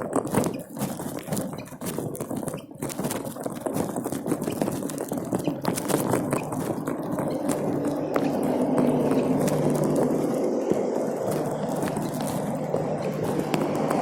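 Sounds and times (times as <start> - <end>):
low hum: 6.4 - 14.0.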